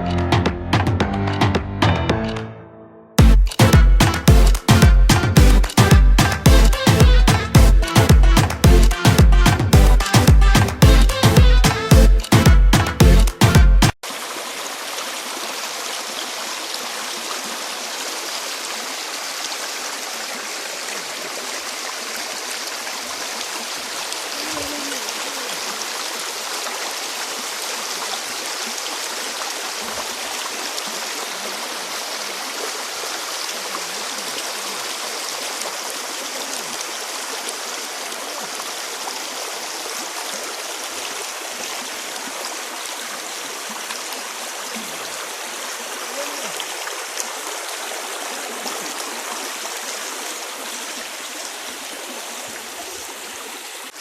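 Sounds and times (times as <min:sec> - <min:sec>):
stream flowing: 0:03.4 - 0:54.0.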